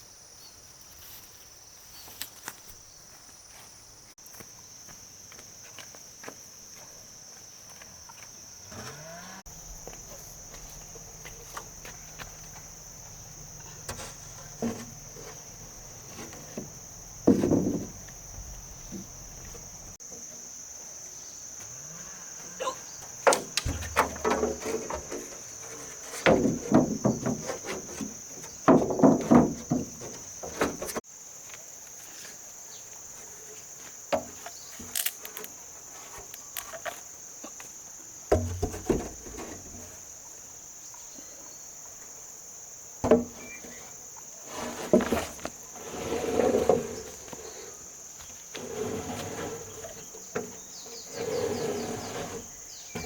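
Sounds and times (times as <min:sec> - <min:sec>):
crickets and insects droning: 0:00.0 - 0:53.0
knocks and clatters: 0:13.8 - 0:18.2, 0:23.2 - 0:31.0.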